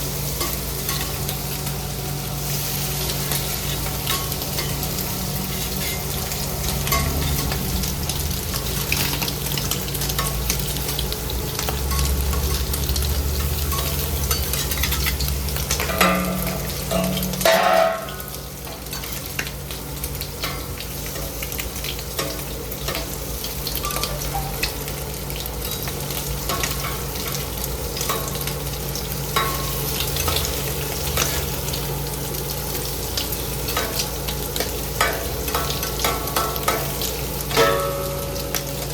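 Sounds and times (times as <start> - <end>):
food sizzling on hot surface: 0.0 - 38.9.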